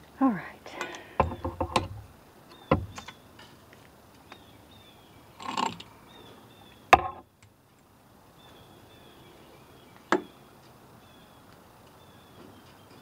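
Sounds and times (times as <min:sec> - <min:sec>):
plastic fittings rattling: 0:00.8 - 0:02.0.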